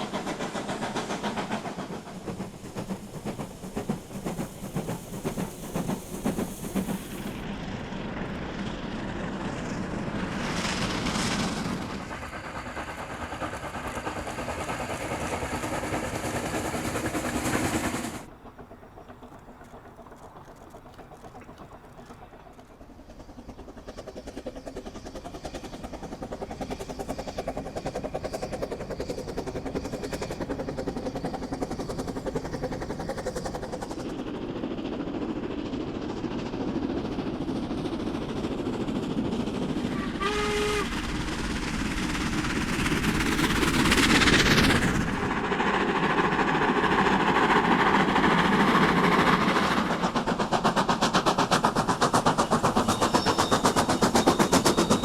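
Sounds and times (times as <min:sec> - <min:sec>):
locomotive rushing past: 0:00.0 - 0:55.0
steam locomotive exhaust beats: 0:00.0 - 0:55.0
train whistle: 0:39.8 - 0:41.4.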